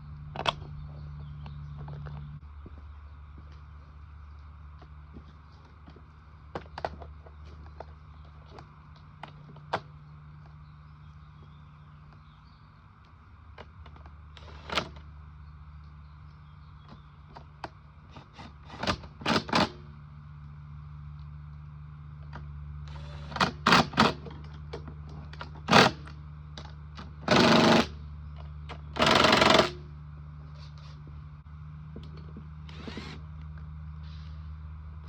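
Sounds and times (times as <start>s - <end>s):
steady low hum: 0.0s - 35.0s
power tool rattling bursts: 18.2s - 19.9s, 22.9s - 24.3s, 25.6s - 26.1s, 27.2s - 28.0s, 28.9s - 29.9s.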